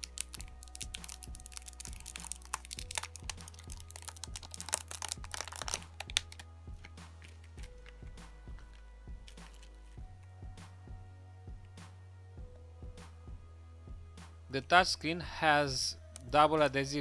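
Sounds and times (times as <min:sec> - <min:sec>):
plastic film peeling crackle: 0:00.0 - 0:09.8
background music low notes: 0:00.0 - 0:17.0.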